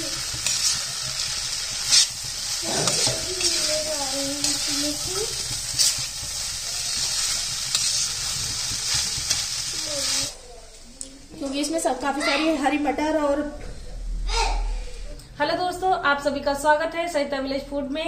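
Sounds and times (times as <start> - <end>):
rice sizzling in a wok: 0.0 - 12.9
spatula scraping a pan: 0.1 - 10.3.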